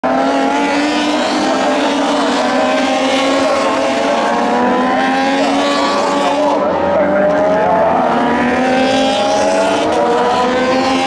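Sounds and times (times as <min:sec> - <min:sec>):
motorcycle engines at high revs: 0:00.0 - 0:11.0.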